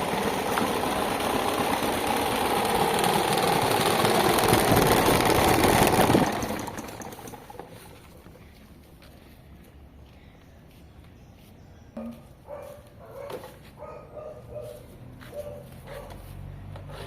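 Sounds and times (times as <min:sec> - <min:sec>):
electric fan with broken blade running: 0:00.0 - 0:08.5.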